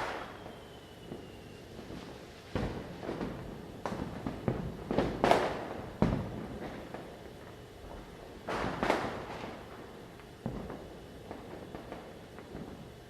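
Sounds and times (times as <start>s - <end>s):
firecrackers banging: 0.0s - 7.3s, 8.4s - 9.8s.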